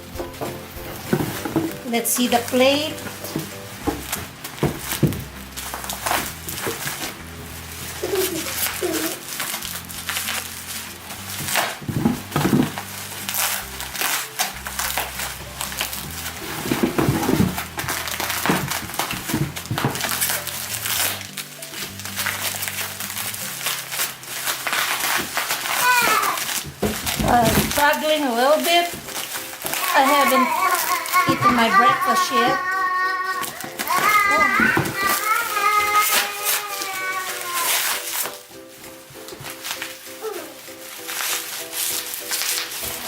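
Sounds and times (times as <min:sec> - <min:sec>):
packing material crinkling: 0:00.0 - 0:43.0
quiet background music: 0:00.0 - 0:43.0.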